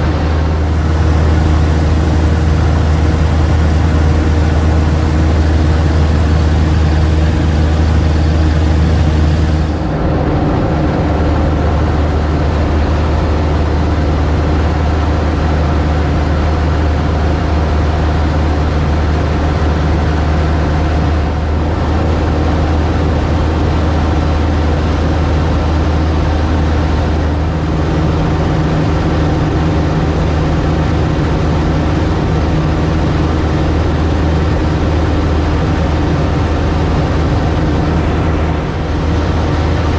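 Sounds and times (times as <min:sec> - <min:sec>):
light aircraft engine droning: 0:00.0 - 0:10.3.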